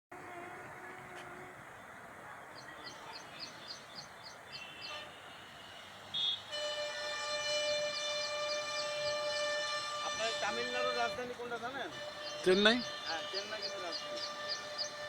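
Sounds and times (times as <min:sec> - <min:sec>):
loud horn-like tone: 0:04.6 - 0:15.0.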